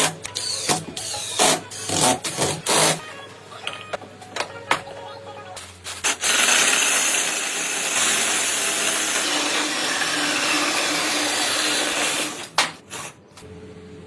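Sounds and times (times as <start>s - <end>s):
power tool running: 6.0s - 12.6s.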